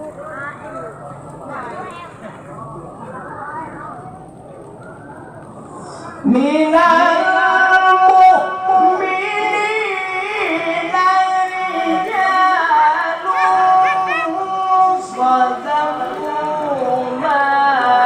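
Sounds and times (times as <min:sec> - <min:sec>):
man chanting melodic recitation: 0:06.2 - 0:18.0.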